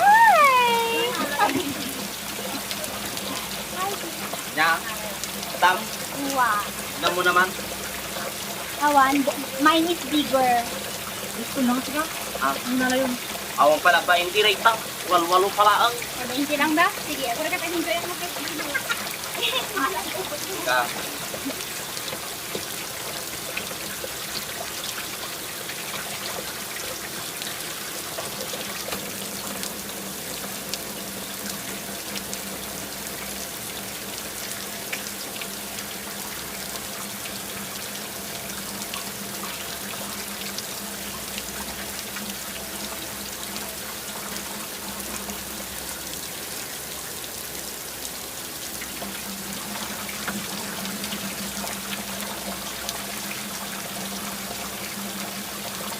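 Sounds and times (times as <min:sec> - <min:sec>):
water running and trickling: 0:00.0 - 0:55.9.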